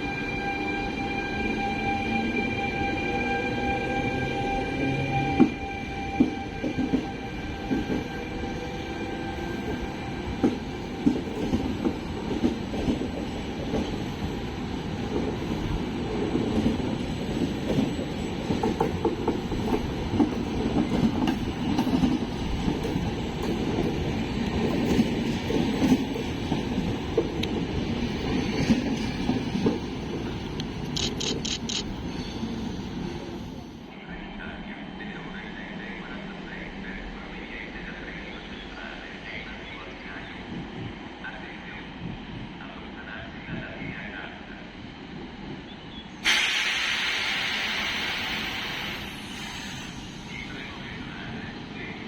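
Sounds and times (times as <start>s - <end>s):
train wheels rumbling on rails: 3.5s - 33.9s.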